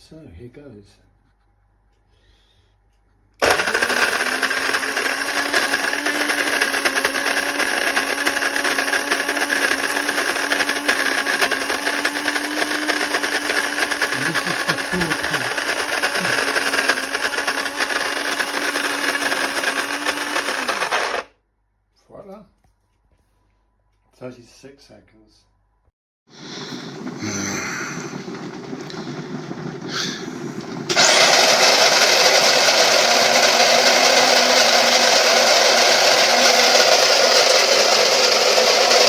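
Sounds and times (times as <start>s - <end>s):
electric coffee grinder whirring: 3.4s - 21.3s, 26.3s - 39.0s.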